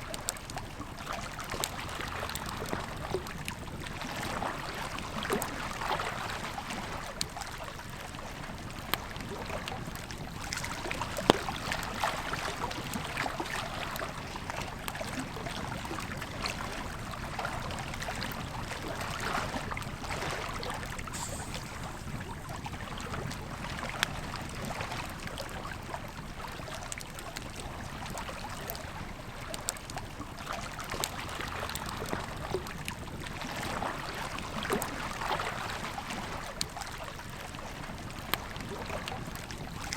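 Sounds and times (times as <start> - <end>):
river flowing: 15.9 - 25.5
campfire crackling and popping: 20.8 - 28.2.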